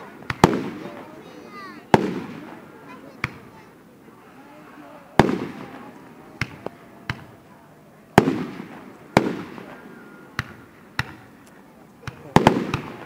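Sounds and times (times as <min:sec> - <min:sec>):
fireworks bangs: 0:00.0 - 0:03.7, 0:05.2 - 0:07.5, 0:08.1 - 0:11.4, 0:12.0 - 0:13.0.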